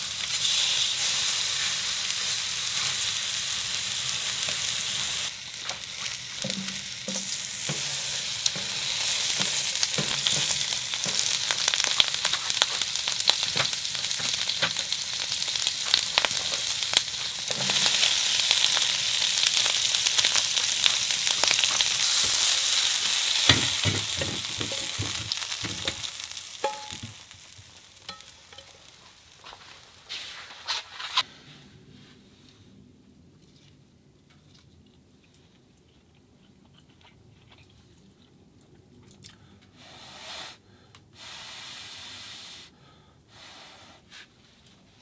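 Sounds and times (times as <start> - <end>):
food sizzling in a pan: 0.0 - 30.6.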